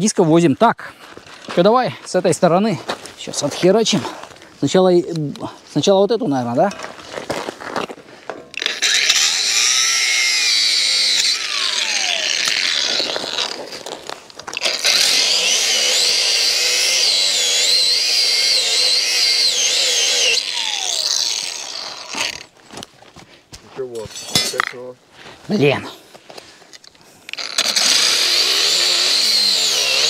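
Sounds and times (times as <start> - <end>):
angle grinder cutting metal: 8.5 - 13.9, 14.5 - 22.5, 27.3 - 30.0.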